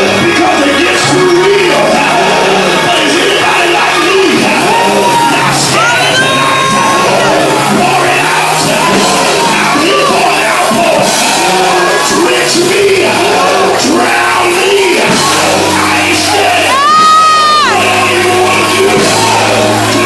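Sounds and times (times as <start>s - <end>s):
church music: 0.0s - 20.0s
many voices shouting and singing: 0.0s - 20.0s.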